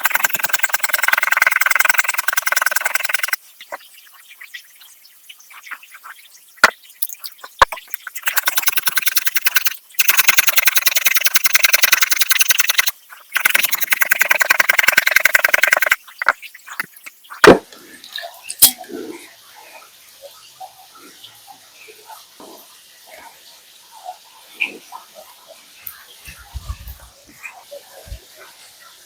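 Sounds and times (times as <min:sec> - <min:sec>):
kitchen utensil rapid strokes: 0:00.0 - 0:03.4, 0:08.0 - 0:16.1
knocks: 0:17.4 - 0:17.7.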